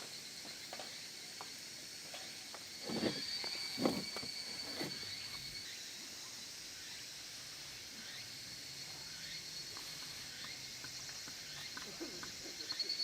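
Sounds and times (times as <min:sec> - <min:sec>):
soft thuds: 0:02.8 - 0:05.0.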